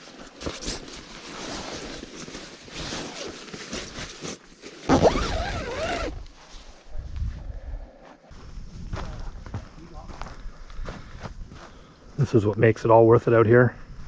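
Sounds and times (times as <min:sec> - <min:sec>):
nylon fabric rustling: 0:00.0 - 0:06.6
tent zipper: 0:00.4 - 0:06.4.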